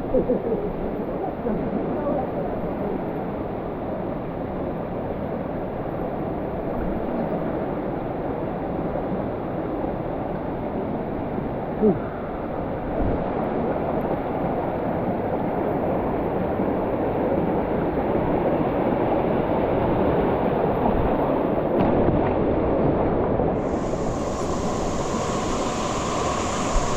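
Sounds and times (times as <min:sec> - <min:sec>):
waterfall and stream rushing: 0:23.6 - 0:26.9.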